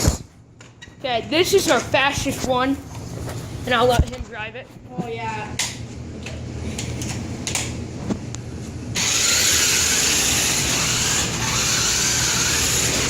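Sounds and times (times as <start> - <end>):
toy car electric motor: 9.0 - 13.0.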